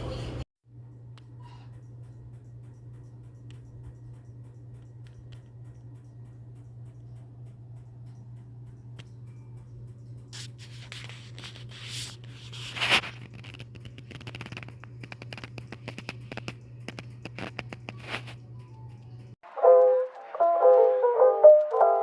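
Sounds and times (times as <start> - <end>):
small clicks and scratching: 1.8 - 19.2.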